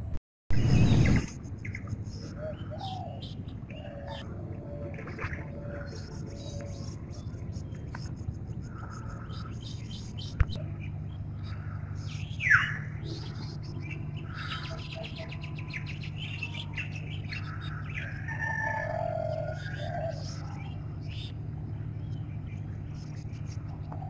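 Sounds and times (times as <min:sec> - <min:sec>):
steady low hum: 0:00.0 - 0:24.0
small birds chirping: 0:05.6 - 0:24.0.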